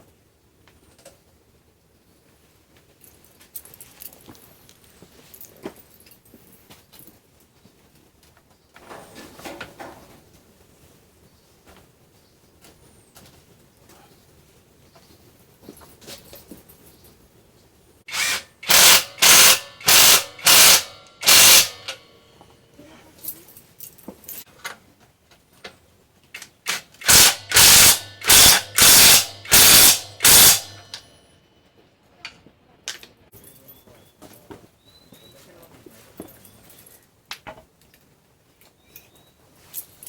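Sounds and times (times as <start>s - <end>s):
tool rasping strokes: 18.1s - 22.0s, 27.0s - 30.8s.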